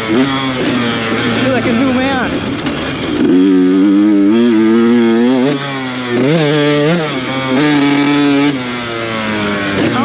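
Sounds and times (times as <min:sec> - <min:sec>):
two-stroke dirt bike engine revving: 0:00.0 - 0:10.0.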